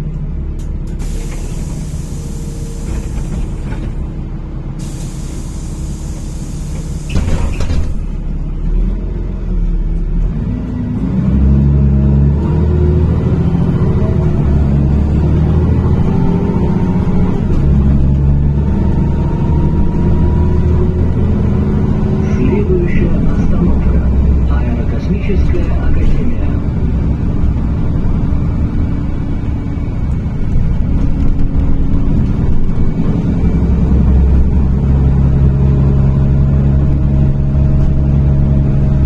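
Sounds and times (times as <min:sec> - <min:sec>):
bus engine running: 0:00.0 - 0:39.0
compressed-air hiss: 0:01.0 - 0:03.6, 0:04.8 - 0:07.6
sharp air release: 0:01.0 - 0:03.9, 0:04.8 - 0:08.0.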